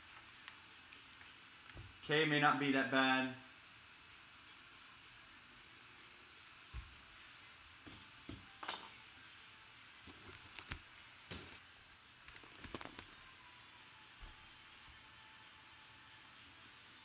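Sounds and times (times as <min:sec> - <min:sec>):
low steady hiss: 0:00.0 - 0:17.0.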